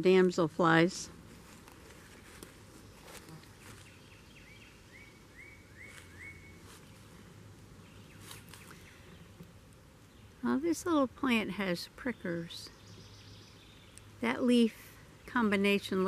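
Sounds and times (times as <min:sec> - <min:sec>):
footsteps rustling through grass: 0:01.2 - 0:04.1, 0:05.8 - 0:09.0.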